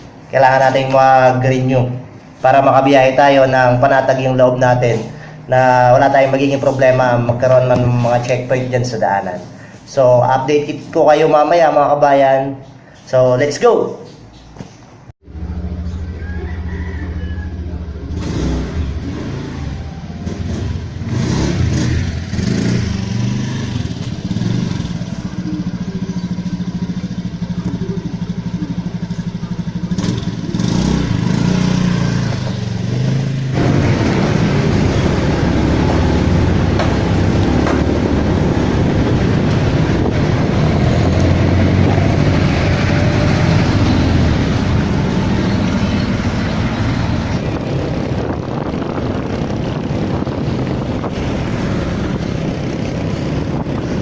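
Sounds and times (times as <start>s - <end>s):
wind and road noise: 14.1s - 54.0s
motorcycle engine running: 15.2s - 54.0s.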